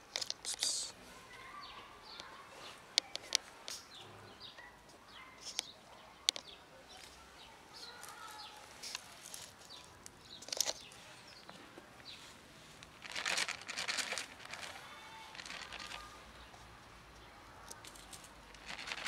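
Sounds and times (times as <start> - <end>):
rustling and crinkling: 0.0 - 1.5, 4.9 - 16.8, 17.6 - 19.0
small birds chirping: 0.0 - 19.0.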